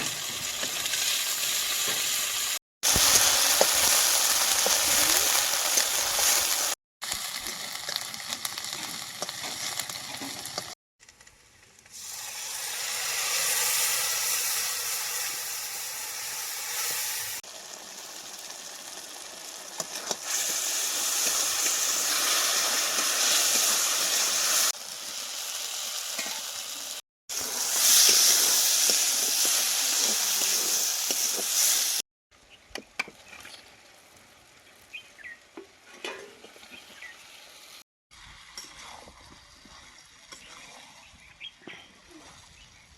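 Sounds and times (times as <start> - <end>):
curry sizzling in a pan: 0.0 - 10.8, 11.9 - 32.0.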